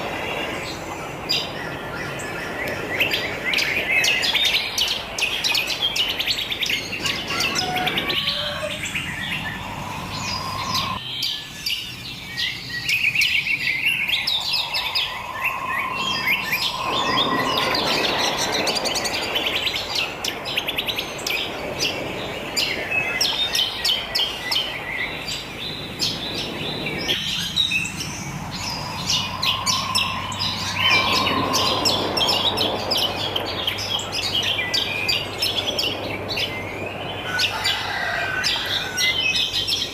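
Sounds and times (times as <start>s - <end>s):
birds chirping and singing: 0.0s - 39.9s
whistled bird note: 12.4s - 20.2s, 28.5s - 36.6s.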